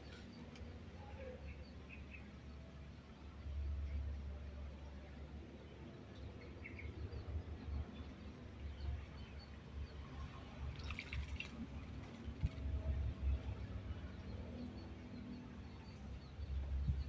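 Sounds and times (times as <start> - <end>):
bird splashing in water: 10.7 - 12.0.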